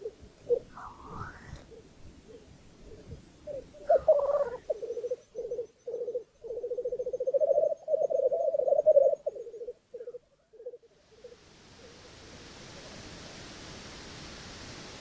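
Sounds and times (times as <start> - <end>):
grouse bubbling cooing: 0.0 - 10.8.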